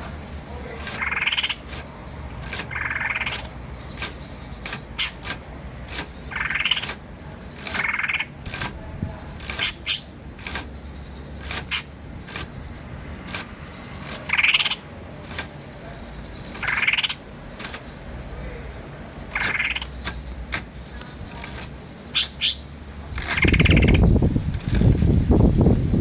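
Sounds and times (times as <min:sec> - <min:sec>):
short sharp clicks: 0:00.0 - 0:08.8, 0:09.4 - 0:10.8, 0:11.4 - 0:12.6, 0:13.2 - 0:15.6, 0:16.4 - 0:17.9, 0:19.3 - 0:22.3
starling rising calls: 0:00.4 - 0:08.5, 0:10.8 - 0:15.0.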